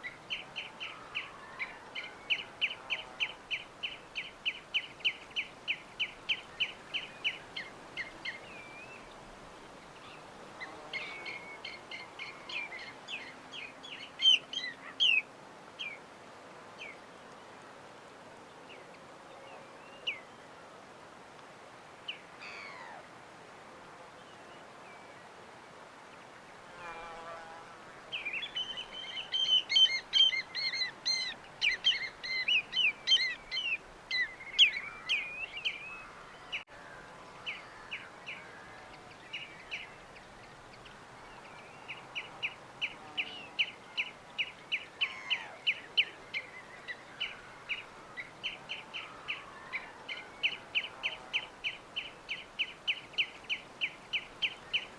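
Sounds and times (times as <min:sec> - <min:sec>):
small birds singing and chirping: 0:00.0 - 0:16.0, 0:28.0 - 0:54.9
faint steady hiss: 0:00.0 - 0:54.9.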